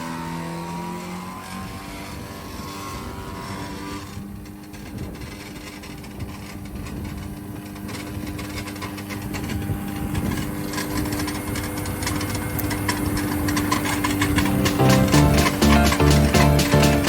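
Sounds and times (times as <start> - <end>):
wood shredder motor hum: 0.0 - 17.0.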